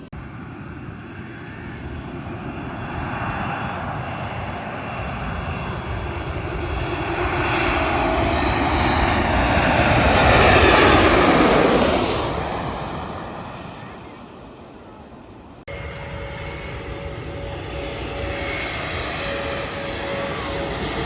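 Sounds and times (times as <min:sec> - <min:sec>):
jet airliner passing overhead: 0:00.0 - 0:21.0
high engine whine falling in pitch: 0:15.7 - 0:21.0.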